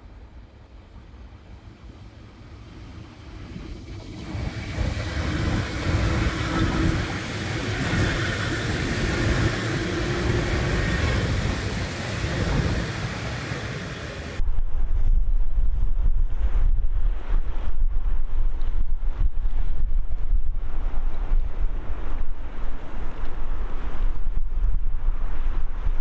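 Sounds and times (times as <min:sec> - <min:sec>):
train passing: 0:00.0 - 0:14.4
wind buffeting the microphone: 0:01.4 - 0:26.0.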